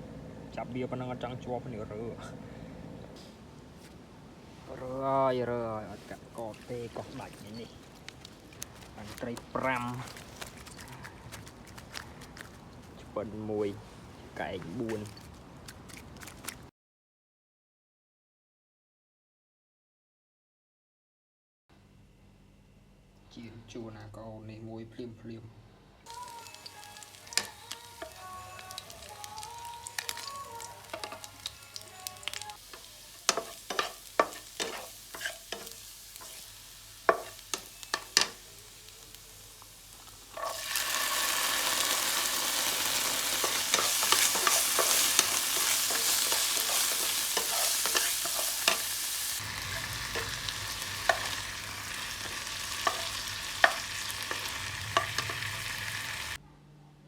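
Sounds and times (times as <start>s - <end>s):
low hum: 0.0s - 4.2s
food sizzling in hot oil: 26.1s - 56.4s.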